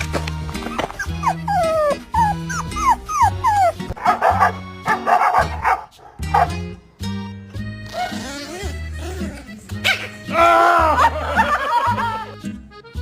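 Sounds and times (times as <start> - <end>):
background music: 0.0 - 13.0
dog whining: 0.7 - 4.5
dog yips and barks: 0.7 - 6.6.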